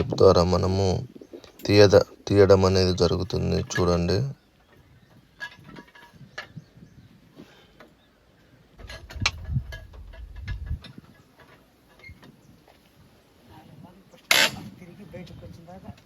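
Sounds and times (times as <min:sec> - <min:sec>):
metal knocks and clanks: 0:08.8 - 0:12.4.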